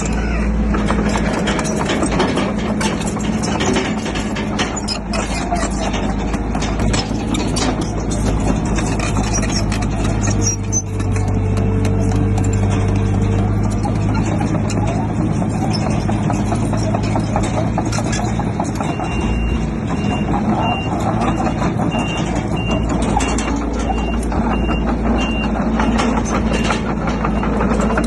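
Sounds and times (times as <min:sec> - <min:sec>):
bulldozer diesel engine: 0:00.0 - 0:28.0
tracks clanking: 0:00.0 - 0:28.0
reversing alarm beeping: 0:18.8 - 0:28.0.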